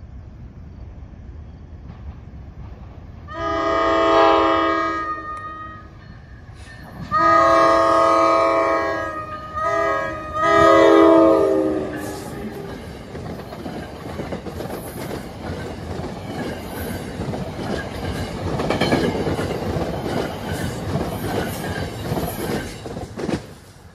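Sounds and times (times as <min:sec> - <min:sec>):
train wheels on rails: 0:00.7 - 0:23.9
locomotive horn blasts: 0:03.3 - 0:06.0, 0:07.1 - 0:12.5.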